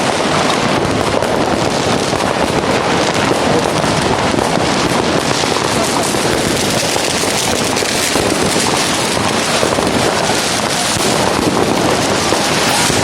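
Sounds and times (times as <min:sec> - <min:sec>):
fireworks and firecrackers crackling: 0:00.0 - 0:13.0.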